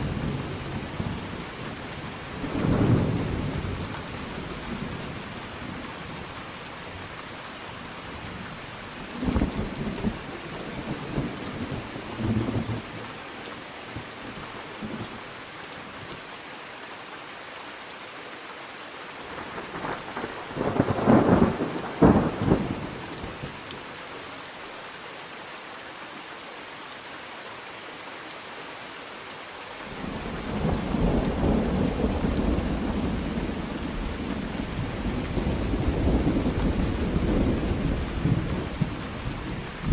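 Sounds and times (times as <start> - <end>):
steady rain: 0.0 - 39.9
thunder rumbling: 19.8 - 23.1, 30.0 - 39.9.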